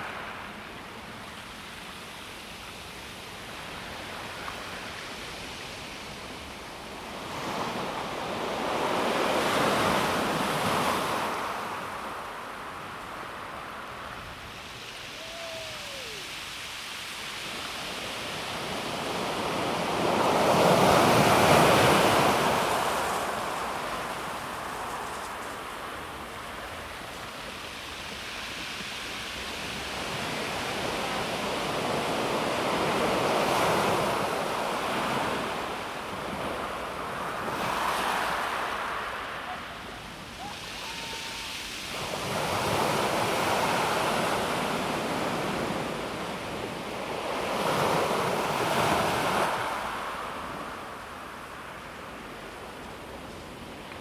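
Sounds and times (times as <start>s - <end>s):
waves washing over pebble beach: 17.5s - 27.4s.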